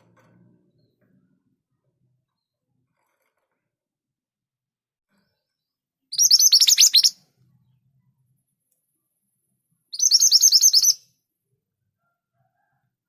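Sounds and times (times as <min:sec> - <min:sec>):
bird singing high downward notes: 0:06.1 - 0:08.1, 0:09.9 - 0:11.2.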